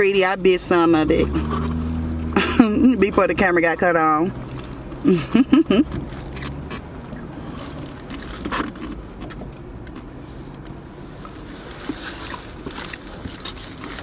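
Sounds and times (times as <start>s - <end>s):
car cabin hum: 0.0s - 14.0s
food wrapper rustling: 11.7s - 14.0s.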